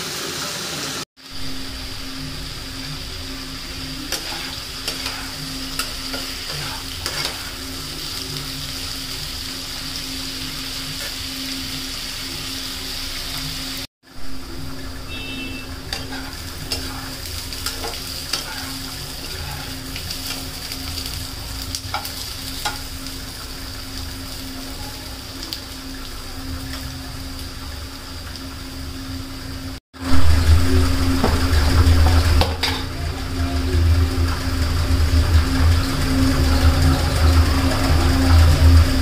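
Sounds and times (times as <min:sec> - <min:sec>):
potato slices sizzling in oil: 0:00.0 - 0:39.0
spatula scraping pan: 0:04.1 - 0:07.7, 0:14.9 - 0:20.5.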